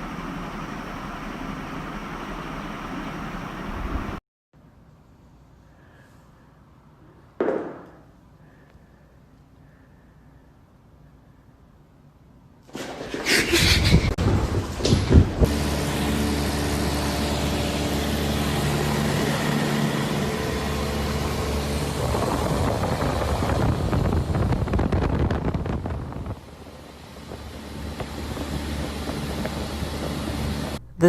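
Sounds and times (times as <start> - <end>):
vehicle engine running: 15.4 - 30.8.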